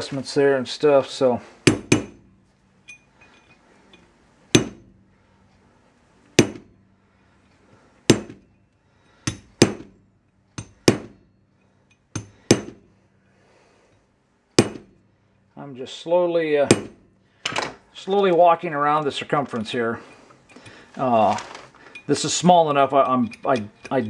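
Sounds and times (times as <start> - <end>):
hammer striking steel chisel: 1.6 - 5.0, 6.4 - 6.9, 8.1 - 8.6, 9.2 - 10.0, 10.6 - 12.9, 14.6 - 15.0, 16.7 - 17.1.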